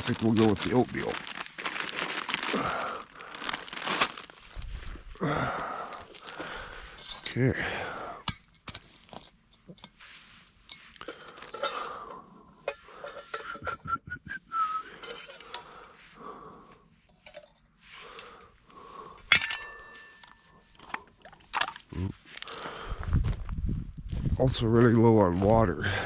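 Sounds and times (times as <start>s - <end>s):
cookware clinking and rustling: 10.7s - 13.8s, 14.9s - 15.8s, 19.3s - 21.8s
person whistling: 13.4s - 15.0s.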